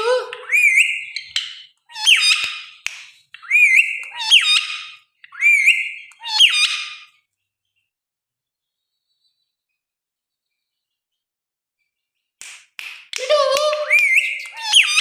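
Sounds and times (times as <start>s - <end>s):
parrot squawking: 0.0s - 2.8s, 3.4s - 7.1s, 13.8s - 15.0s.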